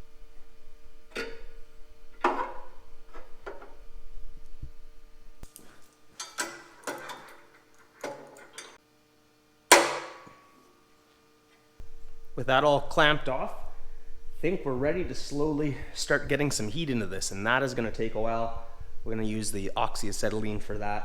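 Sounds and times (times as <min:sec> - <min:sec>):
metal clamps clanking: 0:02.2 - 0:03.8, 0:05.6 - 0:08.8, 0:09.7 - 0:10.5.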